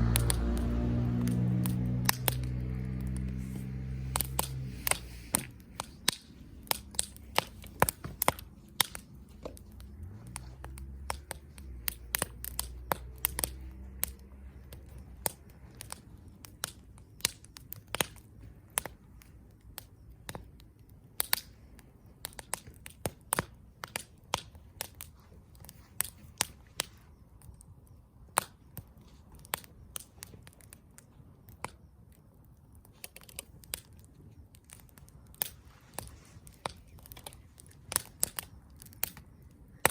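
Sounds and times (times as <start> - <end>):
campfire crackling and popping: 0.0 - 39.9
low rumble of flames: 0.0 - 39.9.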